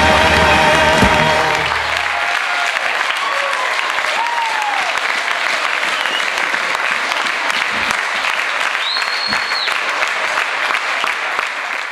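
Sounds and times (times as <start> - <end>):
audience applauding: 0.0 - 11.9
shrill whistle: 5.9 - 6.5, 8.7 - 9.8.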